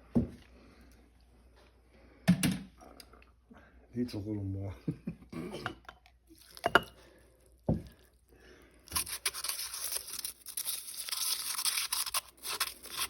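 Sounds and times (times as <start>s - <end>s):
spoon scraping snow in a cup: 8.9s - 13.0s.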